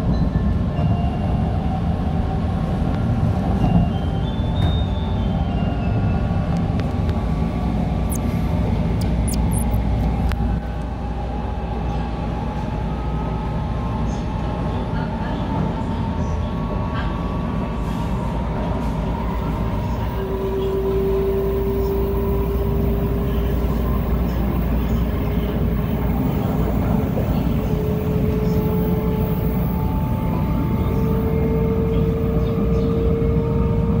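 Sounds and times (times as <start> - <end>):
train cabin rumble: 14.1 - 34.0.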